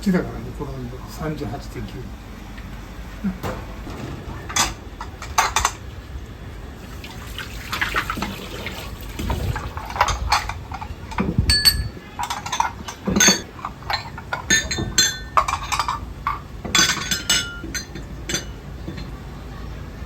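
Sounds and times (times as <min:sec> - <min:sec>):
metal pots and utensils clinking: 0:03.2 - 0:06.6, 0:07.7 - 0:19.2
water splashing: 0:03.5 - 0:09.9.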